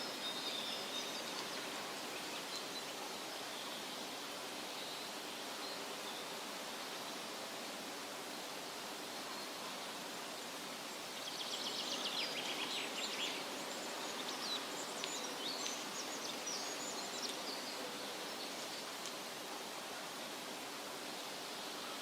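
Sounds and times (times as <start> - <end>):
wind rustling leaves: 0.0 - 22.0.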